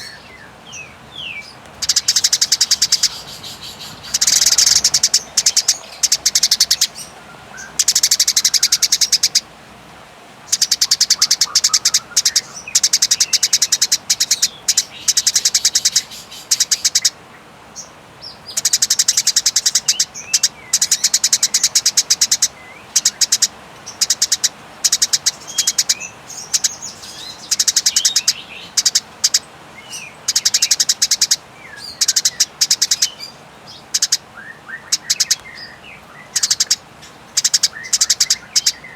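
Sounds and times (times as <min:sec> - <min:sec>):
sparrow chirping chatter: 0:00.0 - 0:09.5, 0:10.4 - 0:38.9.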